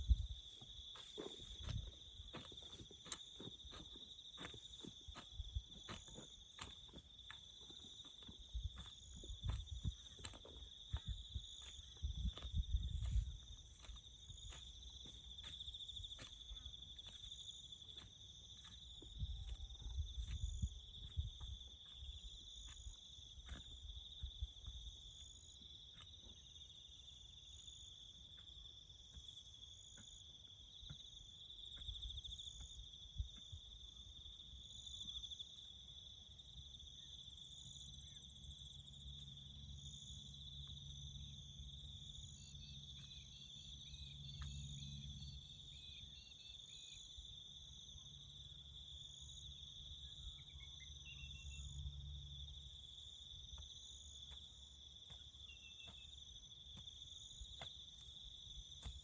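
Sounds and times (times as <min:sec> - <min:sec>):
crickets trilling: 0:00.0 - 0:59.0.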